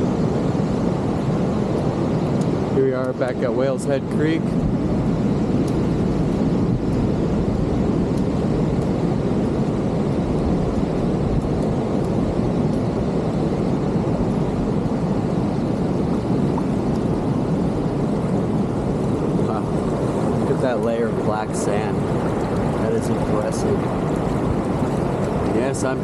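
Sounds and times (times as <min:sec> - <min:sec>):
wind rumbling on microphone: 0:00.0 - 0:26.0
creek water running: 0:10.1 - 0:26.0
surf breaking: 0:19.2 - 0:26.0.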